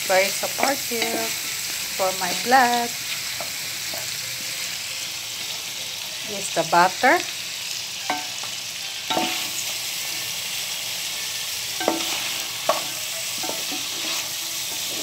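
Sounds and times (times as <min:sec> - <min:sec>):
crab sizzling in butter: 0:00.0 - 0:15.0.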